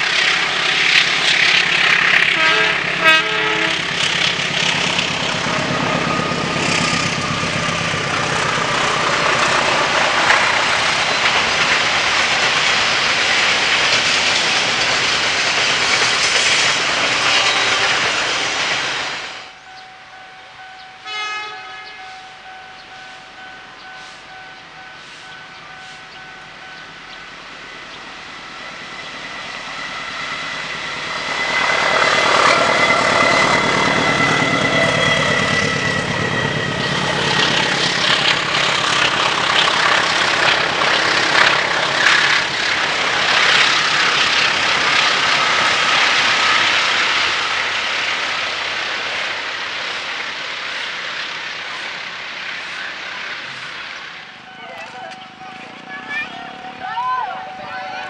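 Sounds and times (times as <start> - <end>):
train wheels clattering over rail joints: 0.0 - 3.0, 3.8 - 19.4, 30.2 - 54.0
train passing: 0.0 - 58.0.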